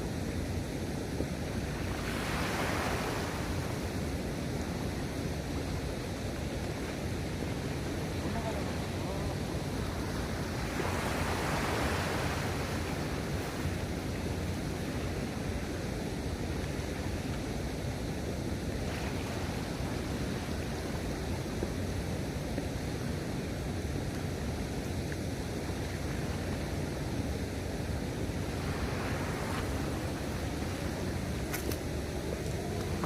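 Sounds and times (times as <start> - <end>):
sea waves washing: 0.0 - 33.0
wind on microphone: 0.0 - 33.0.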